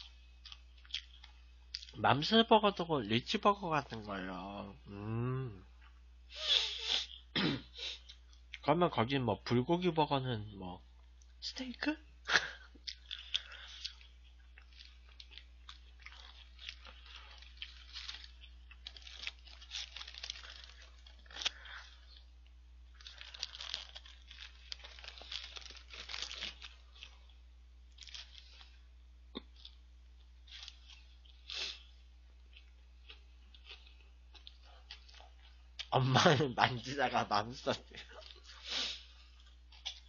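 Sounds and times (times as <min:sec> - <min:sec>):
crunchy chewing of burger: 0:00.0 - 0:02.0, 0:12.3 - 0:35.9, 0:38.0 - 0:40.0
paper wrapper crinkling: 0:16.2 - 0:22.1, 0:22.9 - 0:27.2, 0:27.9 - 0:28.7.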